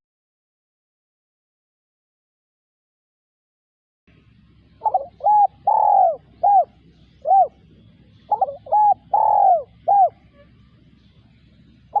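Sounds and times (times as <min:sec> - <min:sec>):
dove cooing: 0:04.8 - 0:10.9, 0:11.6 - 0:12.0.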